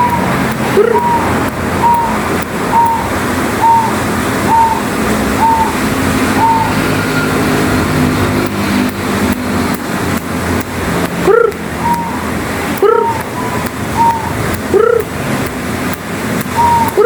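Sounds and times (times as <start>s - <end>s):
zebra dove calling: 0.0s - 7.7s, 11.2s - 15.1s, 16.5s - 17.0s
steady background rumble: 0.0s - 17.0s.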